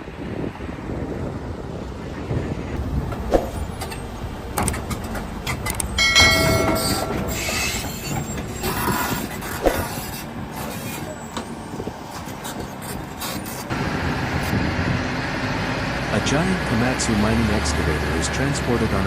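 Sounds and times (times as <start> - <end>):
heavy vehicle rumbling: 0.0 - 19.0
sharp knocks: 4.6 - 8.5
high steady tone: 5.3 - 8.8.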